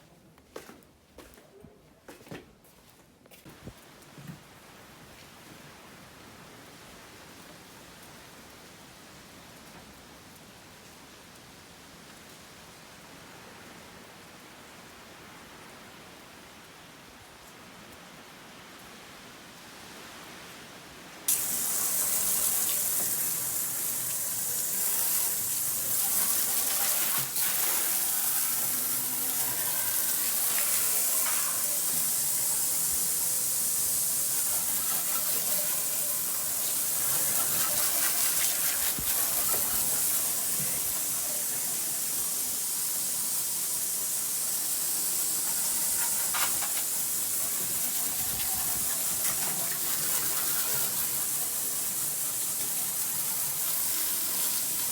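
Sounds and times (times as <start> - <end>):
water rushing and spraying: 21.3 - 54.9.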